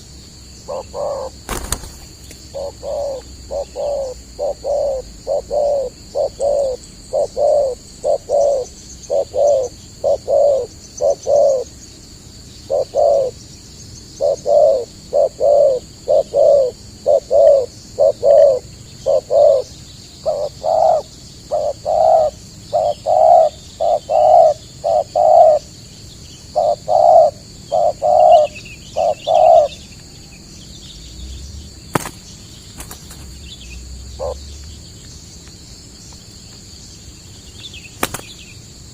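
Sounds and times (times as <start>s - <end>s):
dove cooing: 0.6s - 11.7s, 12.6s - 13.4s, 14.2s - 25.7s, 26.5s - 29.8s, 32.8s - 34.6s
sharp clicks: 38.0s - 38.3s.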